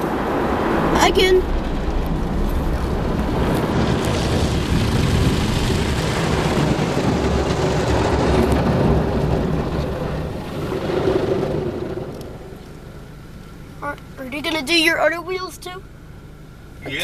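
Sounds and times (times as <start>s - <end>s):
water spray rumbling on car body: 0.0s - 13.4s
steady motor hum: 0.0s - 17.0s.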